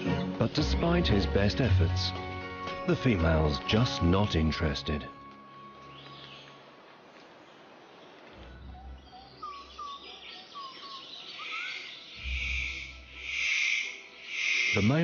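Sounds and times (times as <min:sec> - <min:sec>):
low rumbles: 0:08.2 - 0:10.0
bird whistling: 0:08.4 - 0:15.0.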